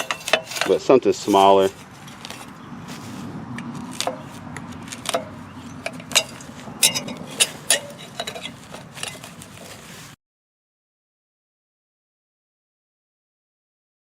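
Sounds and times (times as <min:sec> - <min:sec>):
hand tool clicking and snapping: 0:03.6 - 0:09.5.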